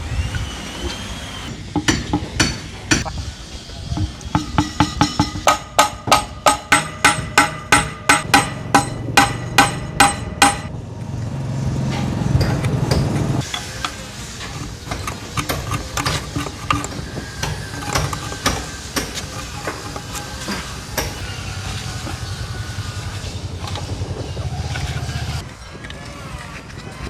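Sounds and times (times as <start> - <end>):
hammer striking metal: 1.5 - 3.1, 4.0 - 10.7, 11.9 - 21.4.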